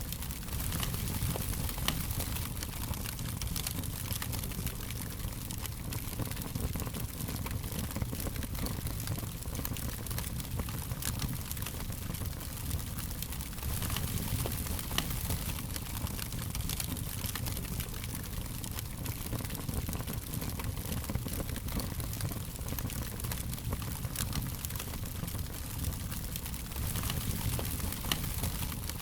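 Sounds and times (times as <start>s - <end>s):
fire crackling: 0.0s - 29.0s.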